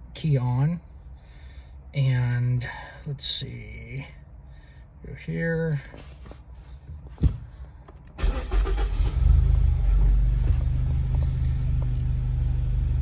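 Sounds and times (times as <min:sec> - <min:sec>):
car engine starting and idling: 0:07.9 - 0:13.0.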